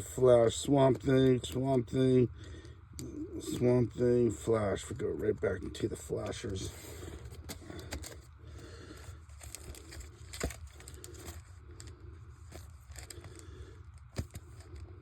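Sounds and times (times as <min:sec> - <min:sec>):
plastic rustling and crinkling: 0:05.5 - 0:15.0.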